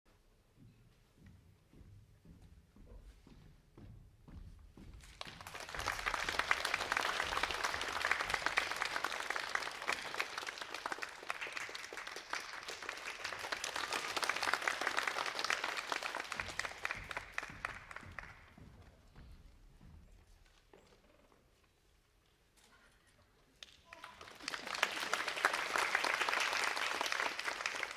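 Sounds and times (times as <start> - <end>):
audience applauding: 5.1 - 18.6, 23.7 - 27.9.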